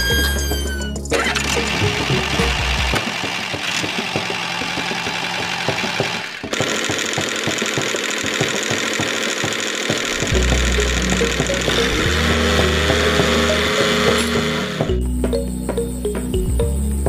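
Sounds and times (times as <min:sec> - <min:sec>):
small motor clattering: 0:01.2 - 0:14.9
low steady bass: 0:10.2 - 0:17.0.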